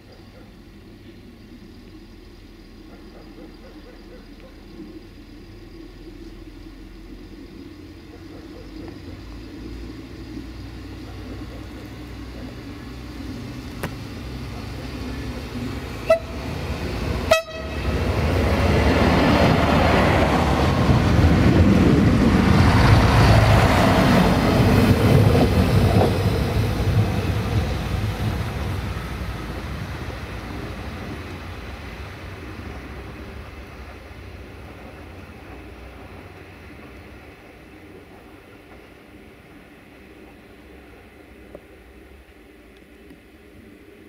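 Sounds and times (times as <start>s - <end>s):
loud wheel and rail noise: 0.0s - 44.0s
train approaching rumble: 0.0s - 44.0s
train horn toots: 16.0s - 18.0s.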